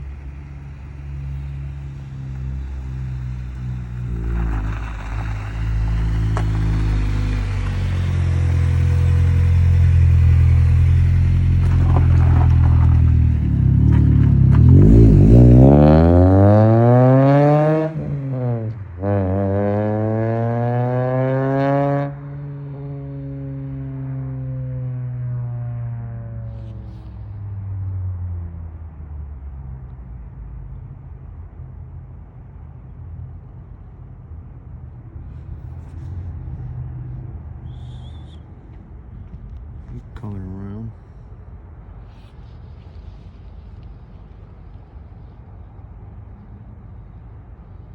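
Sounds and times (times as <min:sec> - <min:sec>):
car engine revving: 0:00.0 - 0:27.6.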